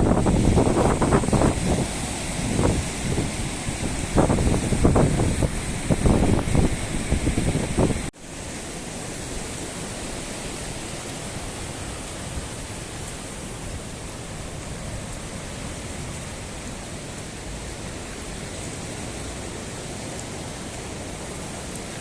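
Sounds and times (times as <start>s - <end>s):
wind buffeting microphone: 0.0s - 8.1s
wind gusting on microphone: 0.0s - 21.9s
heavy rain hissing: 0.0s - 22.0s.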